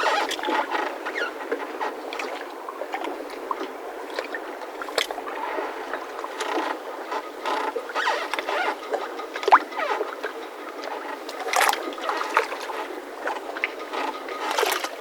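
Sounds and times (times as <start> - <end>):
mooring ropes squeaking and creaking: 0.0 - 2.1, 5.0 - 15.0.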